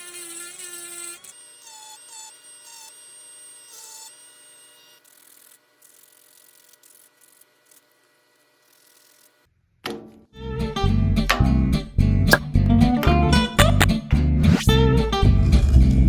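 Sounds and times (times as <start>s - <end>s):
power tool whining on wood: 0.0s - 9.5s.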